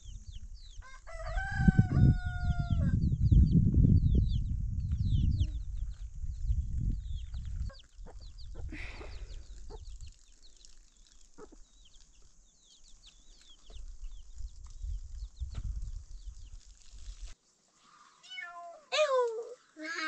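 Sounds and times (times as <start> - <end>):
low rumble: 1.7 - 9.6
poultry chirping: 7.0 - 16.6.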